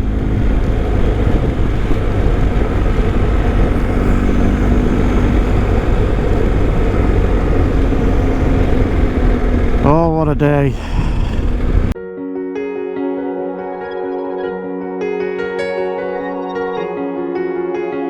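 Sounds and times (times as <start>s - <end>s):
motorcycle engine running: 0.0s - 12.0s
wind noise on microphone: 0.0s - 12.0s.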